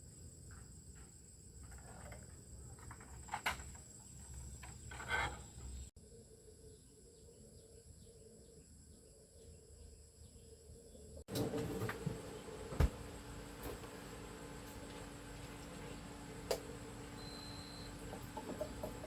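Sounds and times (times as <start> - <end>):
low steady hum: 6.0 - 19.0.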